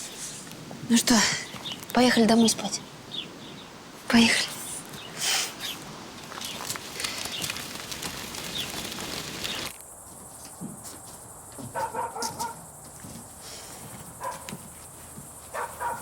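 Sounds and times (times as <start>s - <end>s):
outdoor noise: 0.0s - 16.0s
birds chirping: 0.9s - 9.8s
distant dog barking: 11.7s - 12.6s, 14.2s - 14.5s, 15.5s - 16.0s.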